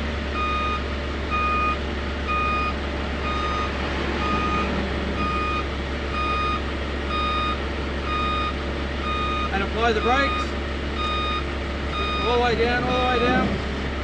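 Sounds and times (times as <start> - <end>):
rollers turning with low hum: 0.0 - 14.0
warning beeper short beeps: 9.1 - 13.4.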